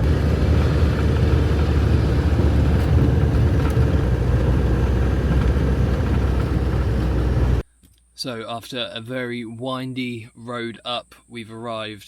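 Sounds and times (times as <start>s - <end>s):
campervan engine rumble: 0.0s - 7.6s
road noise: 0.0s - 7.7s.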